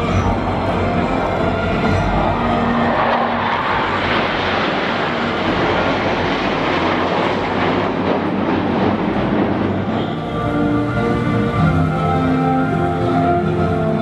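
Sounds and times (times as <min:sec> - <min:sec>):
aircraft engine rushing: 0:00.0 - 0:14.0.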